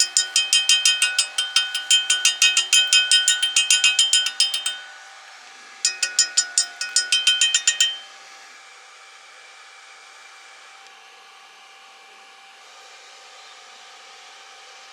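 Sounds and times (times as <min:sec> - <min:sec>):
rapid metal tapping: 0:00.0 - 0:05.2, 0:05.9 - 0:08.1.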